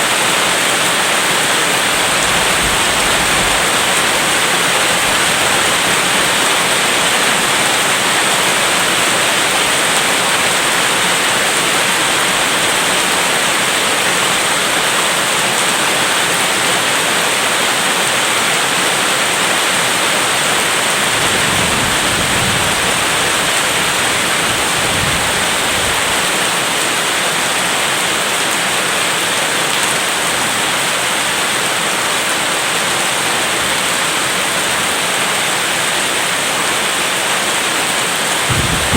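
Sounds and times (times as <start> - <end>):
loud rain: 0.0 - 38.9
distant thunder rumble: 21.1 - 26.2, 38.5 - 38.9.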